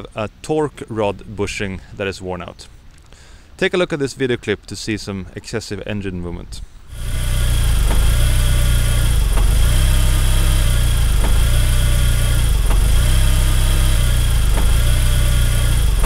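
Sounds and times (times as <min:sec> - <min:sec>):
car engine idling: 0:06.9 - 0:16.0
faint engine pulse: 0:06.9 - 0:16.0.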